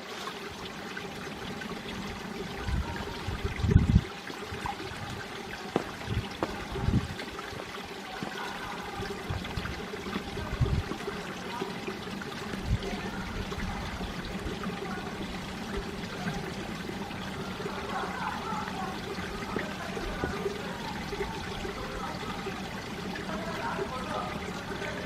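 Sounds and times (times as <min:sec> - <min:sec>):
stream flowing over rocks: 0:00.0 - 0:25.0
low thumps: 0:05.7 - 0:07.1.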